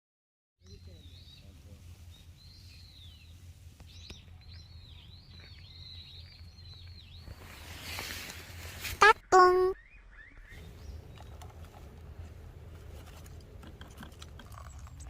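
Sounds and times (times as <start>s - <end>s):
small bird singing: 0.6s - 8.1s, 9.1s - 11.6s
low outdoor rumble: 0.6s - 9.0s, 9.8s - 15.0s.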